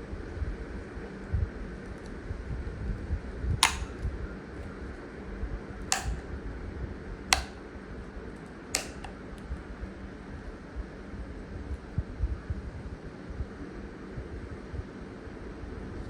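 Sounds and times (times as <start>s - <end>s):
sharp clicks: 3.6s - 4.1s, 5.9s - 6.2s, 7.3s - 7.6s, 8.8s - 9.2s.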